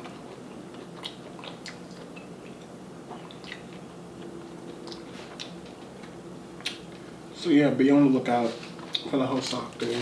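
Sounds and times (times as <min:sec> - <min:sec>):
person chewing food: 0:00.0 - 0:06.8
faint steady hum: 0:00.0 - 0:10.0.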